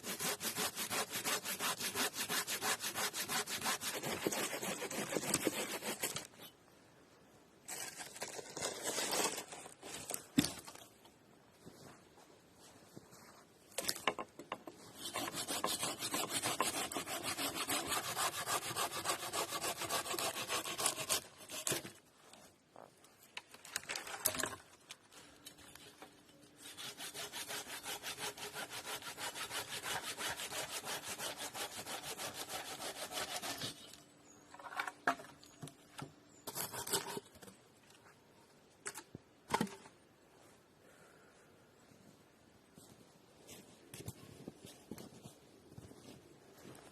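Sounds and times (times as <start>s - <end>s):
hand saw cutting wood: 0.0s - 6.3s, 14.9s - 22.0s, 26.6s - 33.9s.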